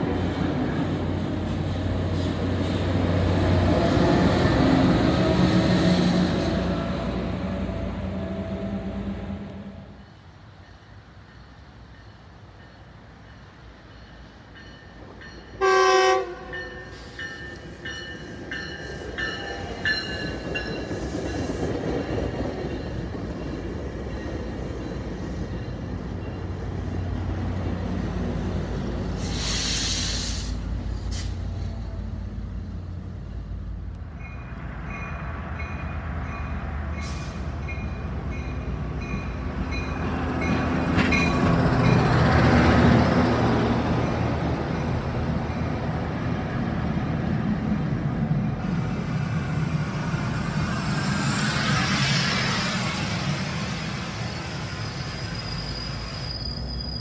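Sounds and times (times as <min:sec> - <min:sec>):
train rumbling past: 0:00.0 - 0:57.0
train horn blast: 0:15.6 - 0:17.1
sharp hiss of air: 0:29.0 - 0:31.7.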